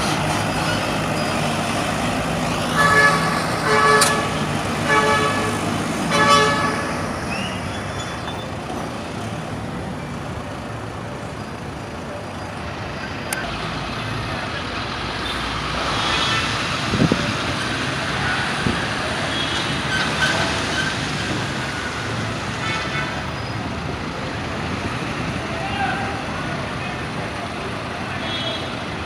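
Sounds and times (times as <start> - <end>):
passing road traffic: 0.0 - 29.0
vehicle horn honking: 2.7 - 7.0.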